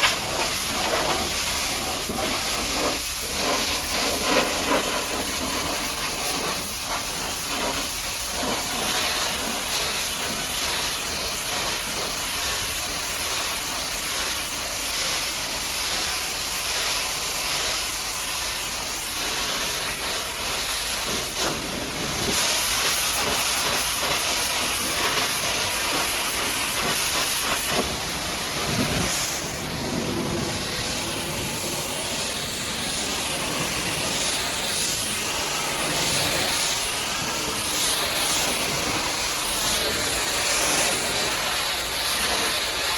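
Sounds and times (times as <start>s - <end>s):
high-pressure water jet hissing: 0.0s - 42.9s.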